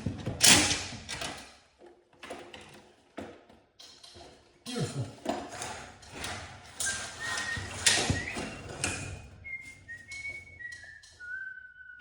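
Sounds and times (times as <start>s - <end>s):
clattering and knocking of work: 0.0s - 11.2s
person whistling a tune: 6.8s - 12.0s.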